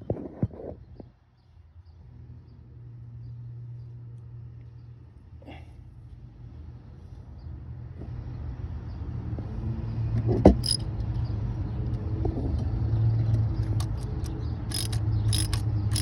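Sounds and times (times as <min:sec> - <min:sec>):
vehicle engine rumble: 0:00.8 - 0:16.0
hand tools clicking: 0:10.6 - 0:10.8, 0:13.7 - 0:16.0
sharp click: 0:10.6 - 0:10.8, 0:13.6 - 0:16.0.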